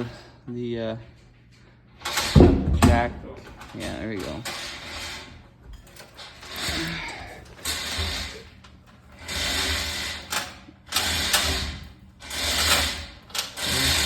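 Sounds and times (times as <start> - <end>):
jack ratcheting: 6.0 - 14.0.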